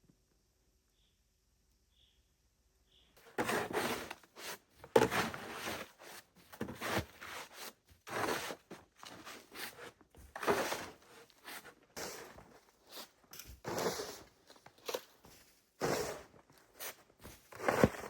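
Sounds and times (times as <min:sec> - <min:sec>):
footsteps in deep snow: 0:03.3 - 0:18.0.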